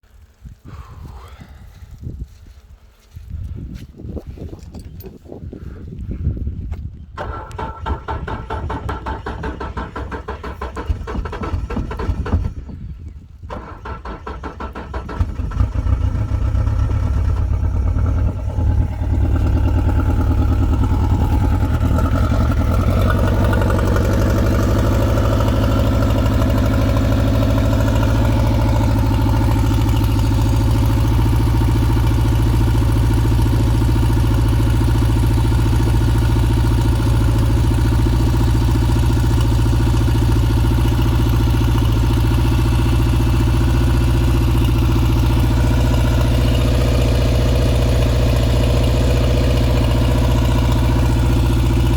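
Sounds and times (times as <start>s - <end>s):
outboard motor starting and idling: 7.2s - 51.9s.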